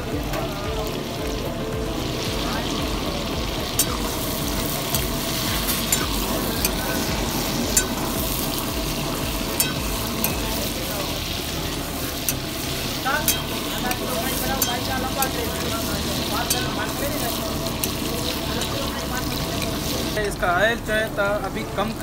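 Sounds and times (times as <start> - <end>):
chicken sizzling in hot oil: 0.0 - 22.0
ladle clinking against wok: 9.5 - 10.5.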